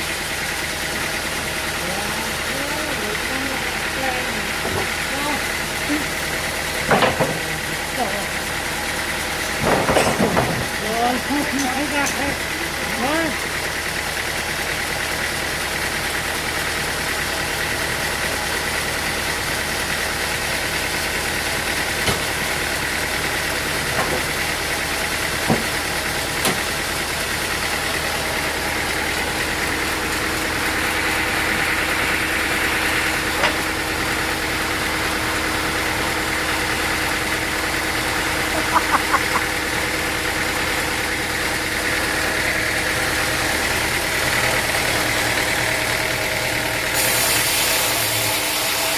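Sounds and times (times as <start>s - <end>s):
sawmill machinery running: 0.0s - 48.9s.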